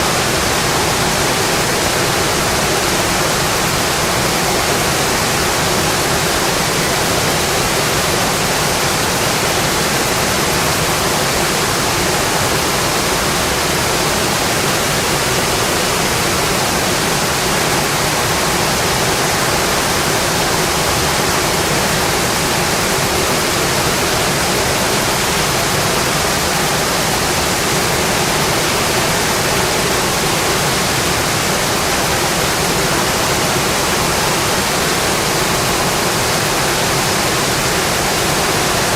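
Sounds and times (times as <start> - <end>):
heavy rain hiss: 0.0 - 38.9.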